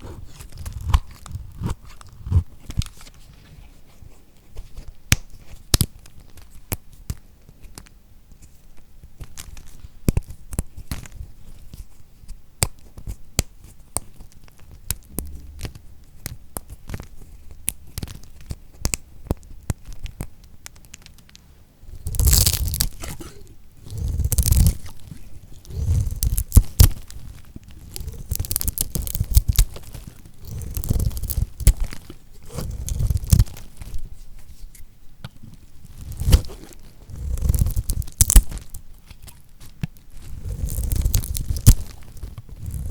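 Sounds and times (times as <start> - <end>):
knife cutting through soap: 22.0 - 34.0, 36.0 - 38.8, 40.2 - 42.9.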